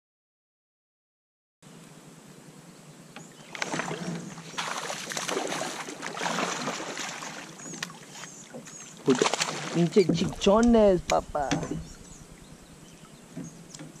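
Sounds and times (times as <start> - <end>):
water splashing around kayak: 3.4 - 14.0.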